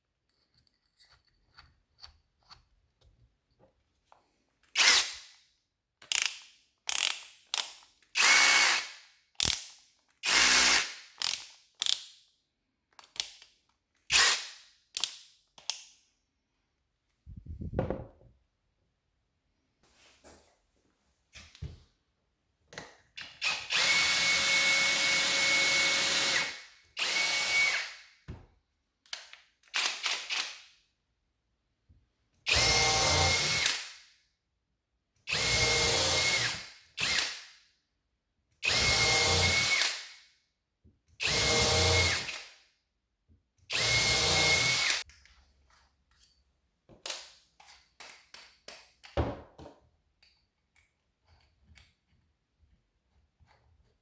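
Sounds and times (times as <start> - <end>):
cordless drill whining: 4.8 - 5.0, 8.2 - 8.9, 10.2 - 10.9, 23.3 - 28.0, 32.5 - 33.7, 35.3 - 37.2, 38.6 - 40.0, 41.2 - 42.4, 43.7 - 45.0.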